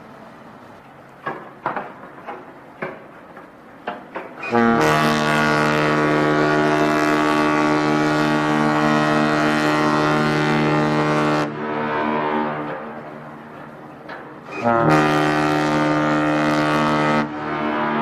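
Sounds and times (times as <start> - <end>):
ferry horn deep blast: 4.4 - 13.3, 14.5 - 18.0.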